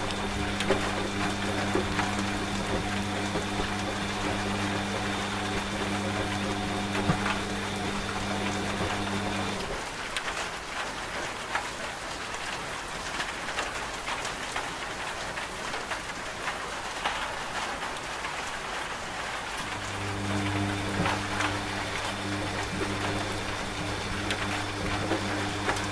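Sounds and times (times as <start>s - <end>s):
washing machine motor hum: 0.0s - 9.9s, 19.6s - 25.9s
rain falling on a surface: 0.0s - 25.9s.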